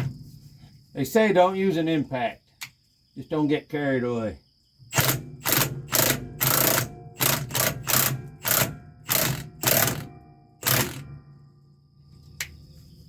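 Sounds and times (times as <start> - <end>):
impact wrench blips: 4.9 - 11.1.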